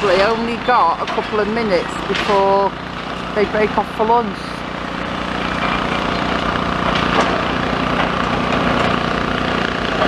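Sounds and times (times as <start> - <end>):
demolition machine engine: 0.0 - 10.0
debris cracking and splintering: 5.3 - 10.0.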